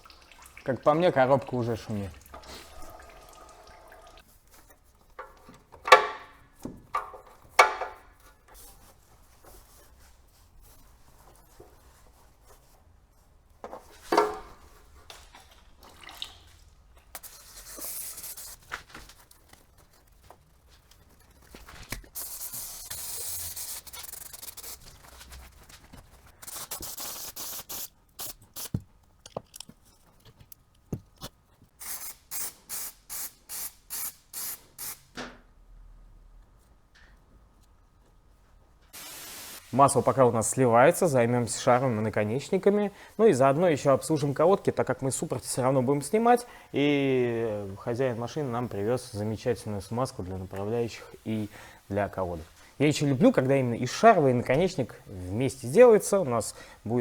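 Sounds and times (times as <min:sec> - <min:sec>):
short hissing bursts: 0:17.2 - 0:18.6, 0:22.2 - 0:24.8, 0:26.4 - 0:28.8, 0:31.8 - 0:35.1, 0:39.0 - 0:39.9
hissing sprays: 0:22.1 - 0:24.8, 0:26.4 - 0:28.8, 0:31.8 - 0:35.0, 0:39.0 - 0:40.0.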